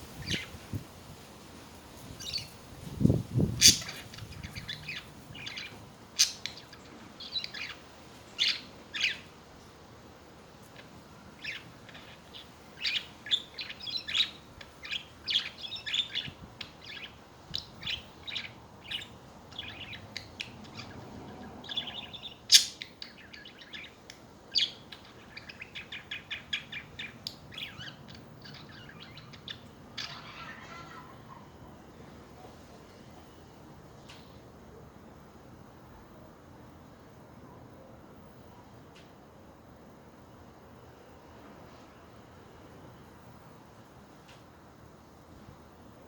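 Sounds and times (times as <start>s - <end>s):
budgerigars chattering: 3.5s - 7.8s, 21.6s - 31.4s.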